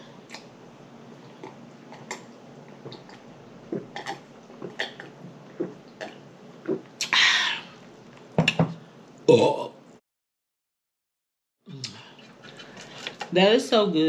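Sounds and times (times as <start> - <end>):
mouth chewing and lip smacking: 1.2 - 7.2.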